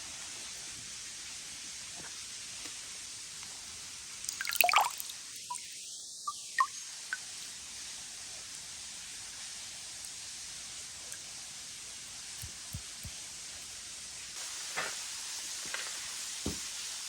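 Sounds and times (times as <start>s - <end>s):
water dripping and splashing: 4.2s - 7.3s
rush of falling water: 14.1s - 17.0s.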